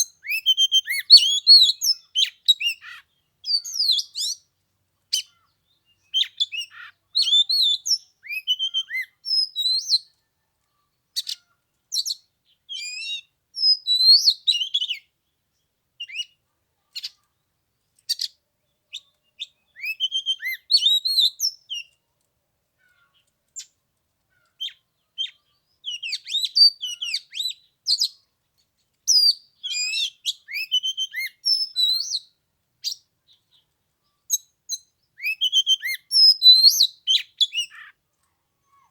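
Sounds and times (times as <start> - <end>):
bird singing: 0.0 - 4.5, 5.1 - 16.4, 17.0 - 22.0, 29.1 - 38.0.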